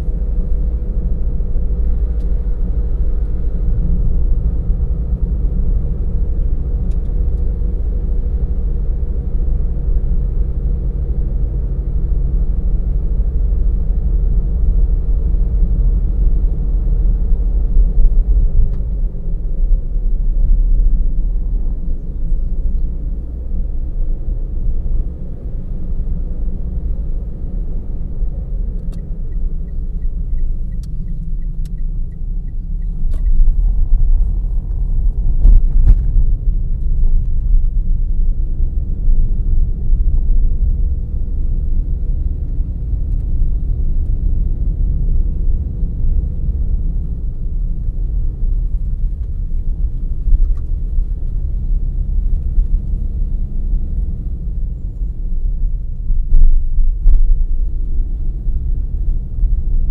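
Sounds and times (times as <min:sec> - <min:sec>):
car engine and tyres rumbling: 0:00.0 - 0:59.9
light regular ticks: 0:28.8 - 0:33.8.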